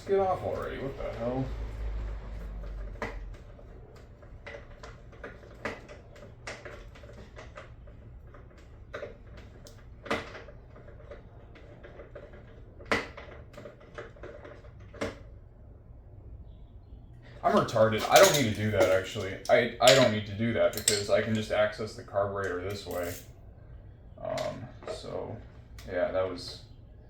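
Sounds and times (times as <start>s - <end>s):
hand tools clicking on metal: 18.0s - 21.4s, 22.4s - 23.3s.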